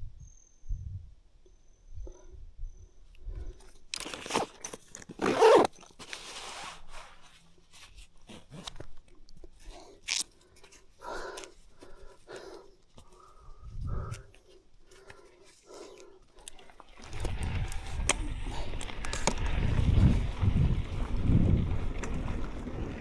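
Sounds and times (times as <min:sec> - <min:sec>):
bike crunching over gravel: 0:17.0 - 0:23.0.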